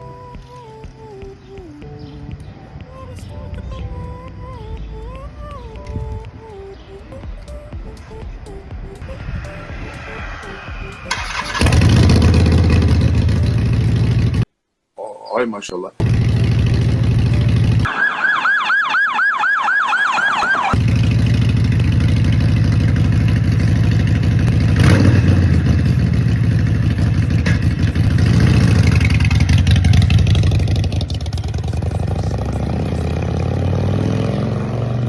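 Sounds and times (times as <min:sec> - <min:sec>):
warbling siren-like tone: 0:09.0 - 0:13.9, 0:17.9 - 0:20.8
motorcycle engine running: 0:10.3 - 0:14.4, 0:16.0 - 0:17.9, 0:20.8 - 0:35.0.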